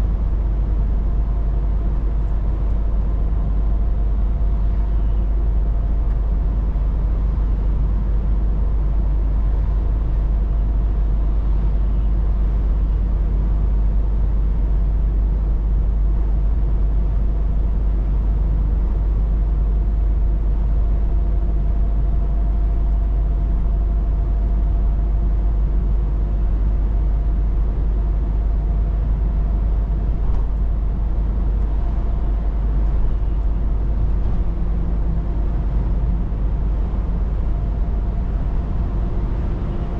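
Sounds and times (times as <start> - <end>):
faint steady whines: 0.0 - 39.9
truck engine rumble: 0.0 - 39.9
road noise: 28.6 - 39.9.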